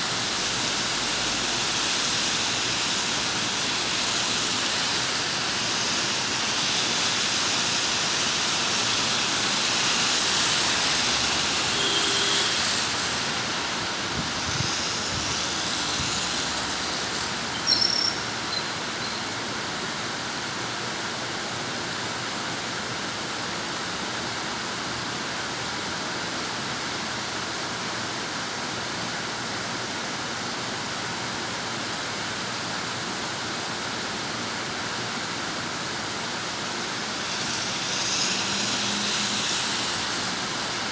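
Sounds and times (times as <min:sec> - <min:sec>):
heavy rain falling: 0:00.0 - 0:20.1, 0:32.6 - 0:40.9.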